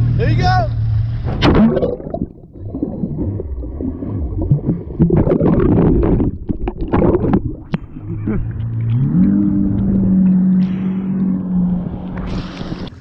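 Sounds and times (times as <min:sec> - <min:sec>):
water sloshing and gurgling: 0:01.2 - 0:13.0
knocks and splashes: 0:01.3 - 0:10.3.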